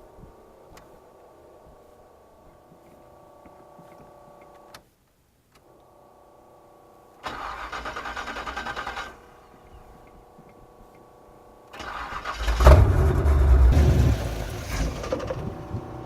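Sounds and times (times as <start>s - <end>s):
faint steady hum: 0.0s - 7.8s
engine cranking by starter: 7.2s - 9.4s, 11.7s - 16.0s.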